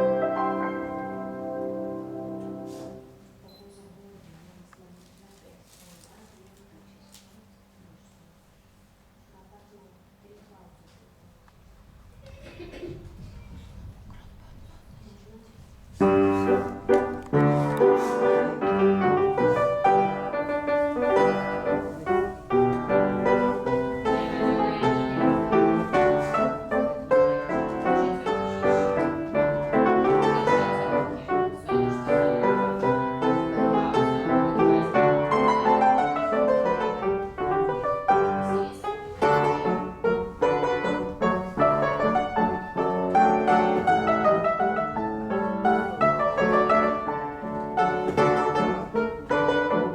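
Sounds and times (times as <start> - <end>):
classical piano playing: 0.0 - 3.2, 15.9 - 49.9.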